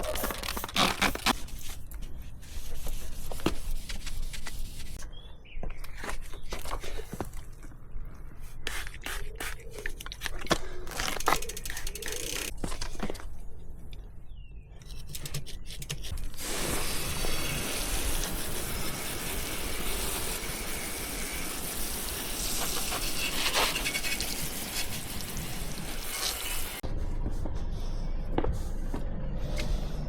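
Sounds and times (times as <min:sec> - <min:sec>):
water spraying onto a bicycle: 0:16.4 - 0:26.8.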